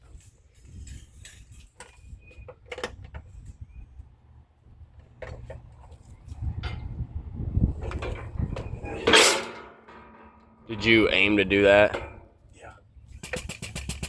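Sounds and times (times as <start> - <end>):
metal parts and tools clicking: 7.8 - 10.6.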